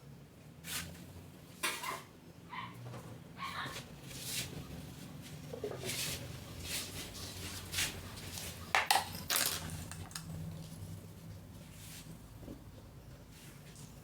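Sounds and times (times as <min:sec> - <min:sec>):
dishes and utensils clattering: 0:08.7 - 0:10.3.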